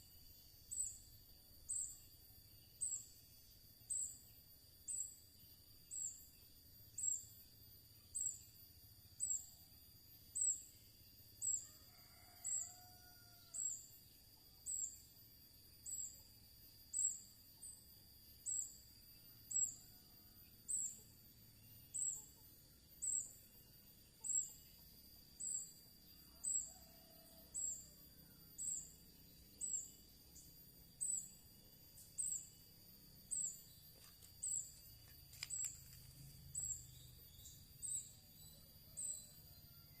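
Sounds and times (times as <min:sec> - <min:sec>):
bird chirping: 0:28.4 - 0:40.0.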